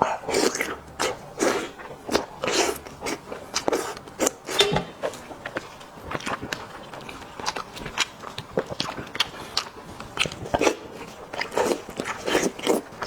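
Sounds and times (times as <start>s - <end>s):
person chewing meat: 0.0s - 13.0s.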